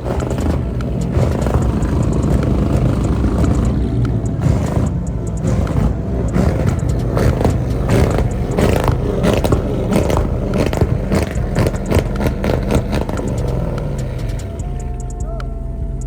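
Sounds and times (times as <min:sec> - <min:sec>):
car engine revving hard: 0:00.0 - 0:16.0
exhaust pops and cracks: 0:00.0 - 0:16.0.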